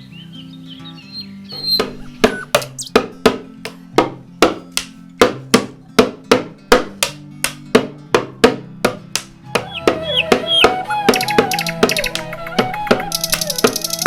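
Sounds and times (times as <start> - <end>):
sharp ringing knocks: 1.6 - 9.3.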